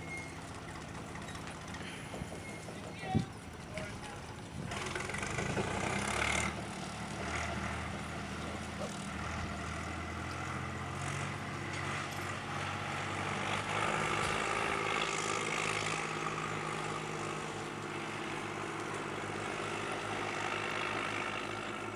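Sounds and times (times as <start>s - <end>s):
tractor engine running: 0.0s - 21.9s.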